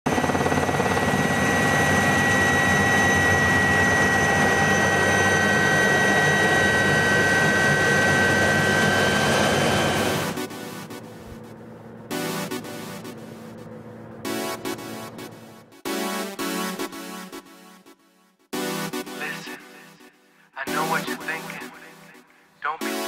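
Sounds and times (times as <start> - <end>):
helicopter rotor noise: 0.1 - 16.0
helicopter turbine whine: 0.1 - 17.4.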